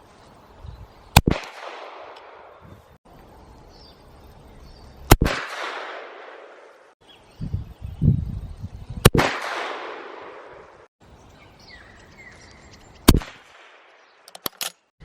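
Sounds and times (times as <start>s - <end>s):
rifle shots with echo: 1.2s - 2.6s, 5.1s - 6.7s, 9.1s - 10.6s.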